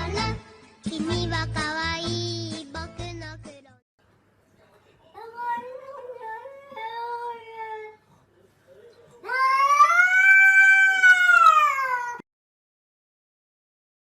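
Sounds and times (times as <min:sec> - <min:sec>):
cat yowling: 0:09.2 - 0:12.2.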